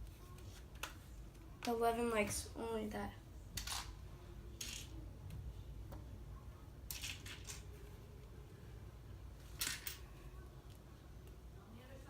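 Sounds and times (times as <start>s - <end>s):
plastic pieces clicking and rattling: 6.9s - 7.7s.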